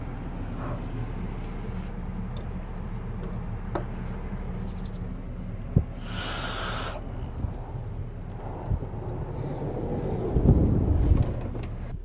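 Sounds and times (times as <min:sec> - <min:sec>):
rustling hiss: 0:06.0 - 0:07.4
wind buffeting microphone: 0:07.1 - 0:12.0.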